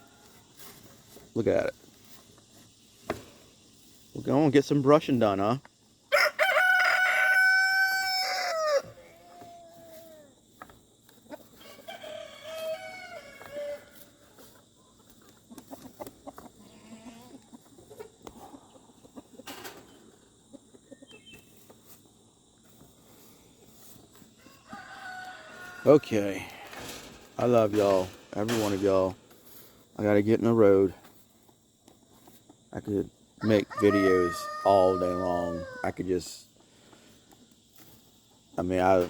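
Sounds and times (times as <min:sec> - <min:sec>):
rooster crowing: 0:06.1 - 0:10.0, 0:11.6 - 0:14.1, 0:24.4 - 0:26.6, 0:33.4 - 0:35.9
distant rooster crows: 0:06.1 - 0:10.2, 0:11.5 - 0:14.2, 0:24.2 - 0:27.2, 0:33.4 - 0:36.0.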